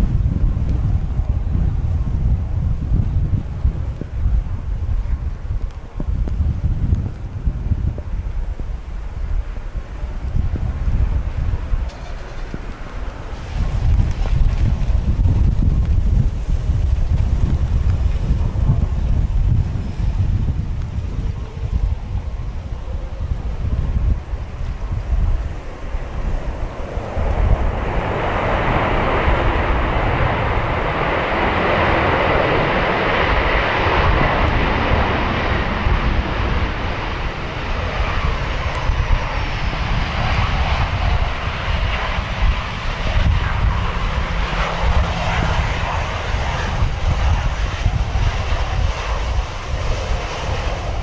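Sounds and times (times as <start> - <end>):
airliner engines roaring: 0.0 - 51.0
wind buffeting microphone: 0.0 - 51.0.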